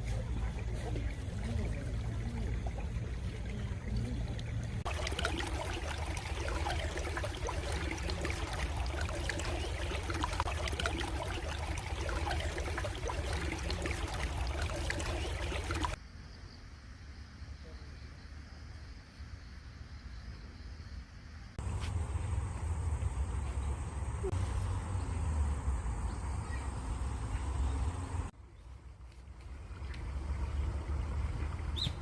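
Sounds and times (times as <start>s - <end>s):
stream babbling over stones: 0.0s - 16.0s.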